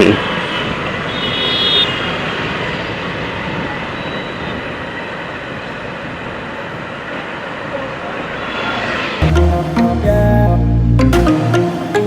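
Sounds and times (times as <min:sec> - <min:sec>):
wind and road rush: 0:00.0 - 0:09.2.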